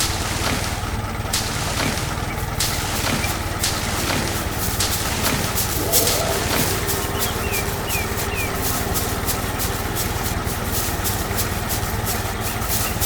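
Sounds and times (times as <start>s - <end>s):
tractor engine running: 0.0s - 13.0s
short high chirps: 5.7s - 9.5s.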